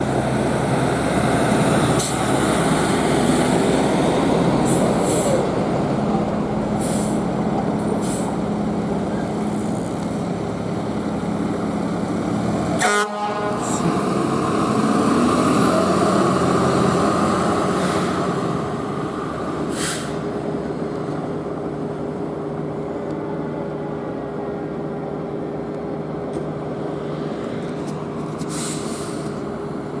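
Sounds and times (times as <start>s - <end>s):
truck engines running: 0.0s - 30.0s
fire engine horn blasts: 12.8s - 14.1s.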